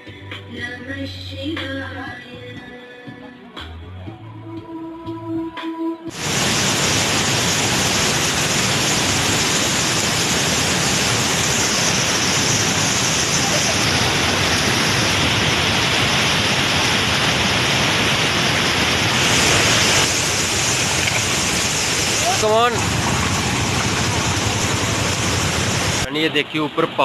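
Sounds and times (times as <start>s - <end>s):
mountain stream rushing: 6.2s - 27.0s.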